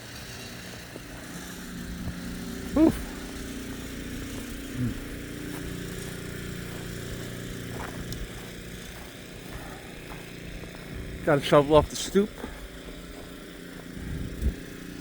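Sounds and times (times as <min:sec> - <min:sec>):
snowblower engine running: 0:00.0 - 0:15.0.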